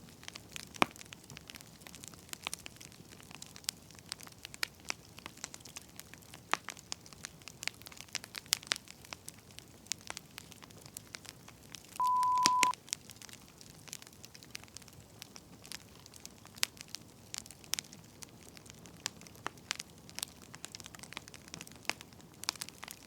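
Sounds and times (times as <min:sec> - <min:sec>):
wood fire crackling: 0:00.0 - 0:12.0, 0:12.8 - 0:23.0
electronic beep: 0:12.0 - 0:12.7.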